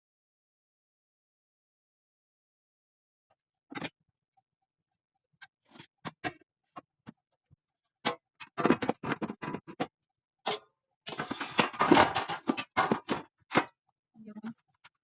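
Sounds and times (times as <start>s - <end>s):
objects clicking and knocking: 8.1s - 9.9s, 10.5s - 13.8s.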